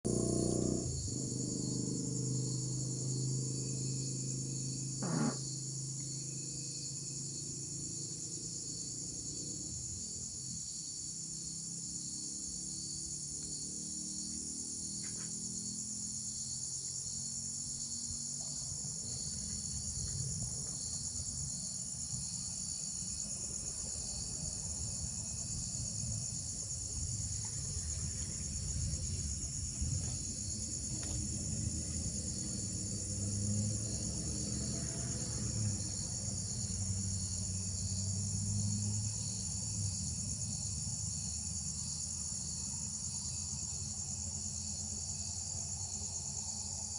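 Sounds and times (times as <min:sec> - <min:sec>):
insects chorus: 0:00.1 - 0:46.9.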